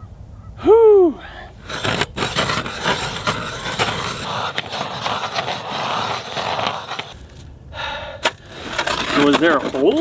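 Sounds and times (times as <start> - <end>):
ice auger scraping ice: 1.6 - 7.4, 8.2 - 10.0.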